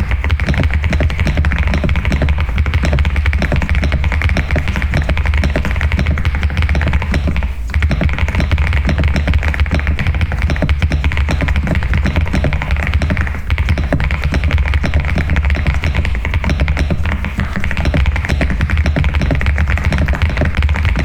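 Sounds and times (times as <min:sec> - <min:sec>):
mechanical keyboard typing: 0:00.0 - 0:21.0.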